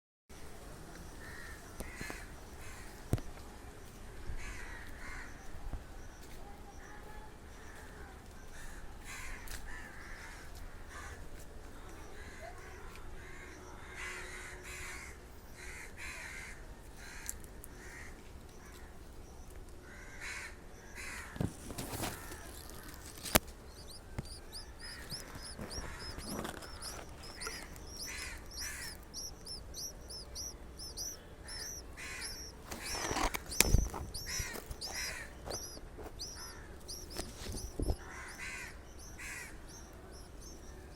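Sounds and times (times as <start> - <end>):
harsh bird calls: 19.8 - 40.9
high-pitched bird chirping: 23.6 - 40.9.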